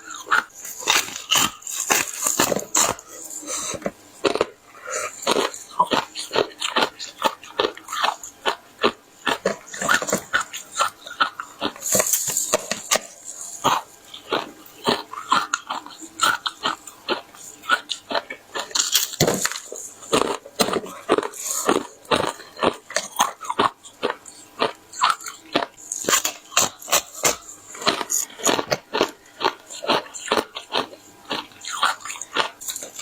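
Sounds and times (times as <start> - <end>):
ice being crunched: 0.7 - 3.0.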